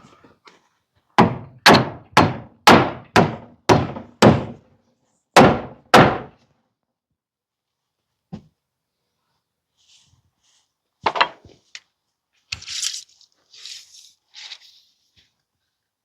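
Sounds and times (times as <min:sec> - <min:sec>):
hammer striking nail into wood: 0:01.2 - 0:04.6, 0:05.4 - 0:06.4.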